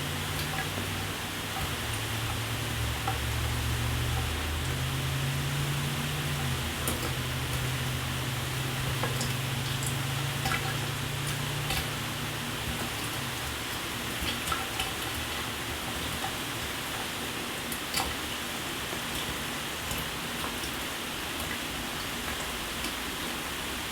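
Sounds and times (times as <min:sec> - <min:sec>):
shower water spraying: 0:00.0 - 0:14.6
water drops pattering: 0:00.1 - 0:13.4.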